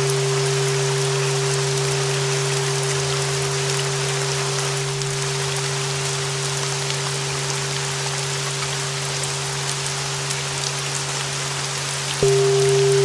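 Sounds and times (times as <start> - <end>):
sustained bell tone: 0.0 - 7.7, 12.2 - 13.0
rain: 0.0 - 13.0
deep hum: 12.2 - 13.0.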